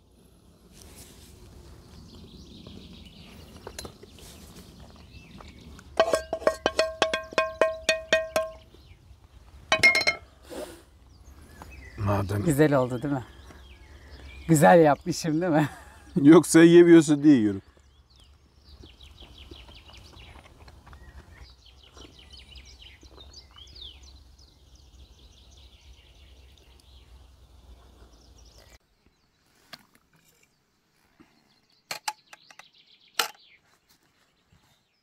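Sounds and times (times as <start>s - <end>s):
songbird trilling: 6.0s - 9.0s.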